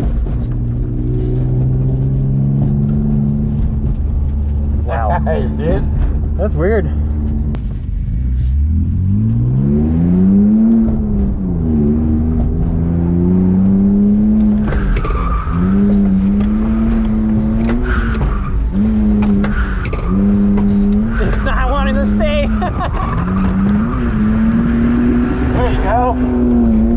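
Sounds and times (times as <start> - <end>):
car engine revving hard: 8.6 - 26.9.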